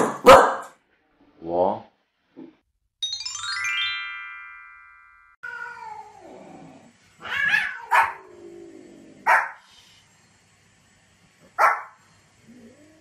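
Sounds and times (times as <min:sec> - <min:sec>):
small dog barking: 0:00.2 - 0:00.7, 0:07.3 - 0:08.2, 0:09.2 - 0:09.6, 0:11.6 - 0:12.0.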